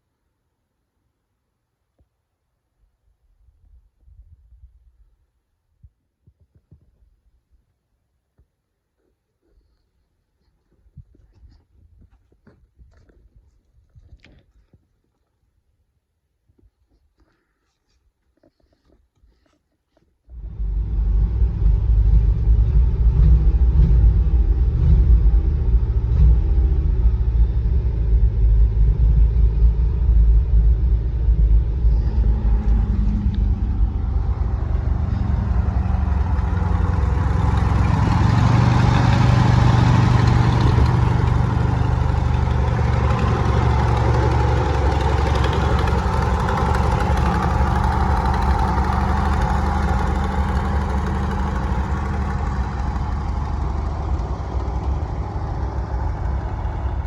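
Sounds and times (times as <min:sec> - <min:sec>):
truck engine rumbling: 0:20.3 - 0:57.0.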